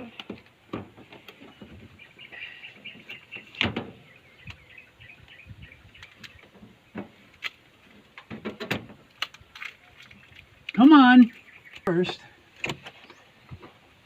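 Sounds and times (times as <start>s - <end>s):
bird twittering: 1.5s - 6.5s, 11.2s - 12.1s
handling knocks and clicks: 5.9s - 13.8s.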